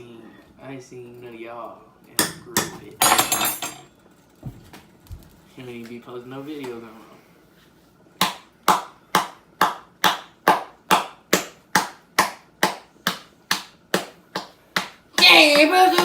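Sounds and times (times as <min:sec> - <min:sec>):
hand claps: 0:08.2 - 0:16.0.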